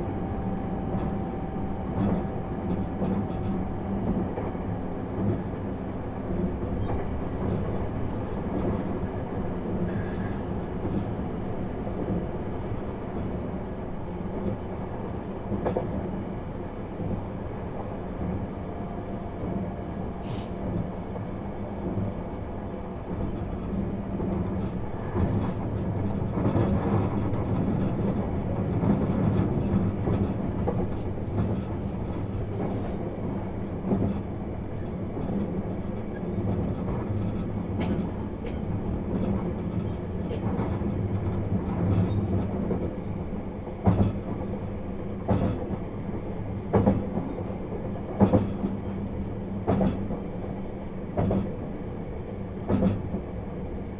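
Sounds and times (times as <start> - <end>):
train rumble with low hum: 0.0 - 53.9
rail-joint clacks: 23.1 - 51.8, 52.4 - 53.6.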